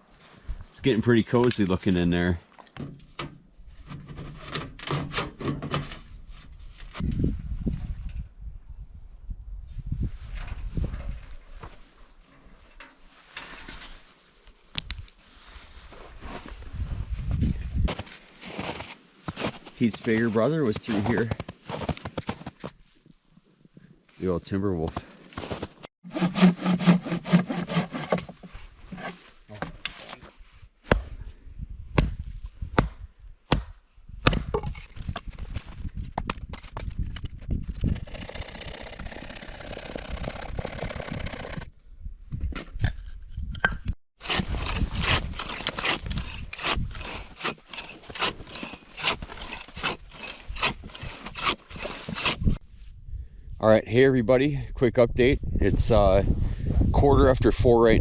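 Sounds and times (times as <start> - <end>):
hand saw cutting wood: 26.0 - 29.2, 37.9 - 41.7, 44.2 - 52.6.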